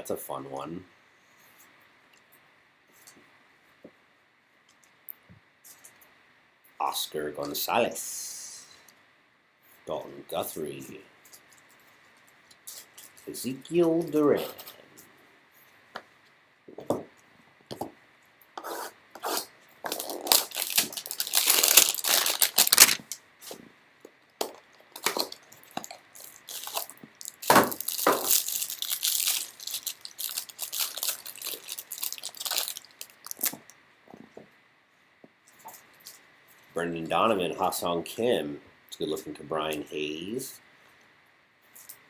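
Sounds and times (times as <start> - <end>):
cardboard ripping: 19.3 - 23.2
wrapper crinkling: 19.8 - 23.2, 25.0 - 33.7.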